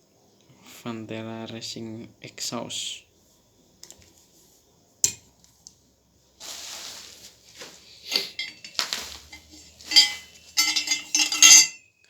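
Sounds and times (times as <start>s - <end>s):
rustling scrape: 6.4s - 11.8s
metallic knocks and clinks: 8.1s - 11.9s.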